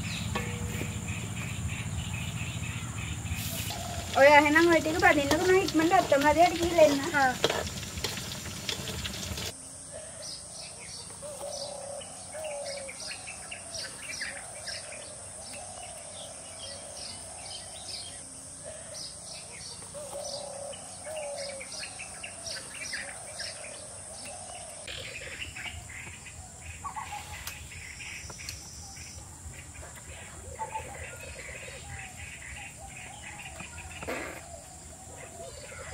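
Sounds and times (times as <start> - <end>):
birds chirping: 0.0 - 35.9
steady high hiss: 3.2 - 9.9.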